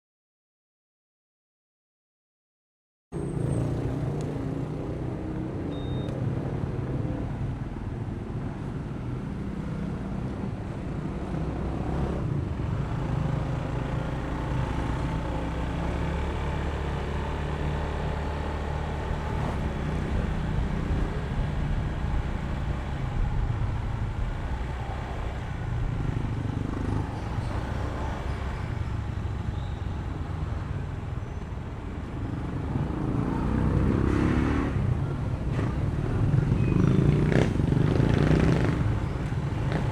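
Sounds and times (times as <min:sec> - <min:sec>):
road and traffic noise: 0:03.1 - 0:39.9.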